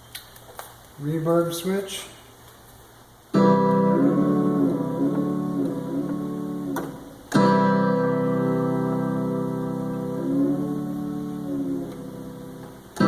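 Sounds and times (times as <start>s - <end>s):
synthesizer guitar-like chords: 3.3s - 13.0s.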